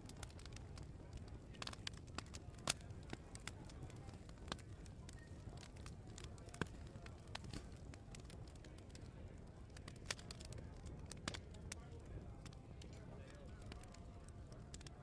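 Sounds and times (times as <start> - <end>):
sharp pops and snaps: 0.0 - 9.0, 9.7 - 11.8
wood fire crackling: 0.0 - 15.0.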